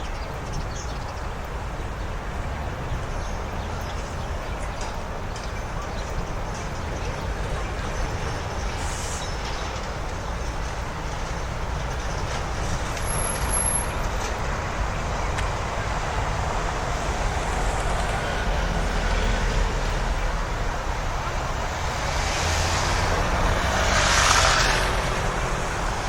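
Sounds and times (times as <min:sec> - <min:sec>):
motor vehicles passing: 0:01.4 - 0:26.0.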